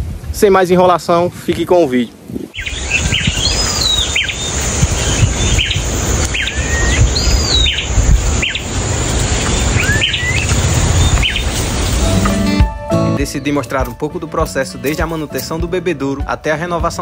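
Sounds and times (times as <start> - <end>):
steady high hiss: 0.3 - 12.6
birds whistling calls: 2.5 - 12.3.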